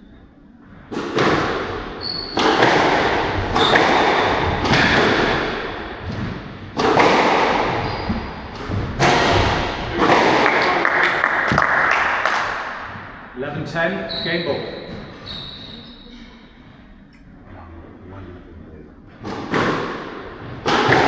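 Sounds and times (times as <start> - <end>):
squash ball cracking off rackets: 0.9 - 13.2, 19.2 - 21.0
shoe squeaks: 2.0 - 2.7, 3.5 - 4.0, 7.6 - 8.6, 13.9 - 16.6.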